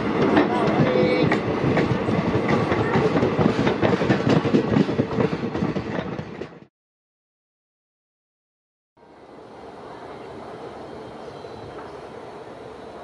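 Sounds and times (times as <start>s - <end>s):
train wheels clattering over rail joints: 0.0s - 6.7s.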